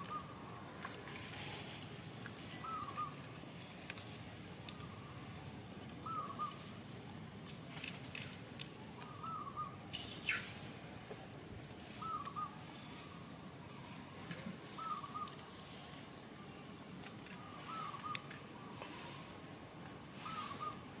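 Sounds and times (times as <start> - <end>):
bird warbling call: 2.6 - 3.2, 9.0 - 10.6, 12.0 - 12.6, 17.4 - 18.3, 20.2 - 20.8.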